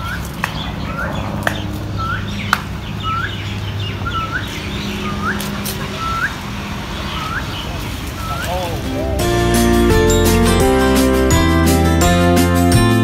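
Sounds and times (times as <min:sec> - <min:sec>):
bird calling upward note: 0:03.0 - 0:06.4, 0:07.0 - 0:09.8.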